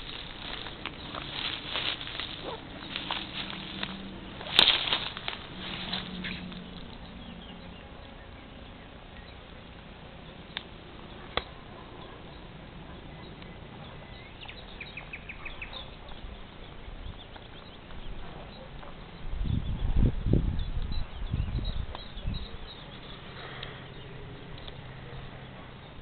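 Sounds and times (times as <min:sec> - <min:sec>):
bird chirping faintly: 0:00.0 - 0:26.0.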